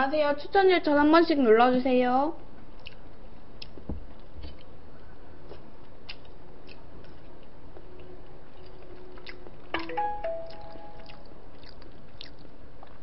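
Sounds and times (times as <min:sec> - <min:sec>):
person chewing food: 0:02.8 - 0:04.8, 0:05.5 - 0:13.0.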